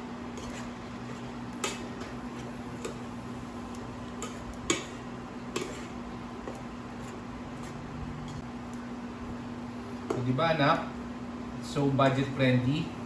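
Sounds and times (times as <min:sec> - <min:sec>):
spatula scraping a frying pan: 0:00.3 - 0:03.1, 0:04.2 - 0:06.0.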